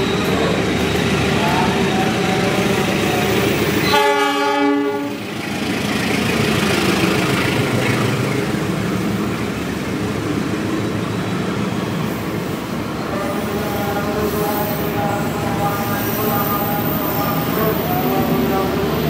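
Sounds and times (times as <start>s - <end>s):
train rumbling past: 0.0s - 19.0s
locomotive horn: 3.8s - 5.2s.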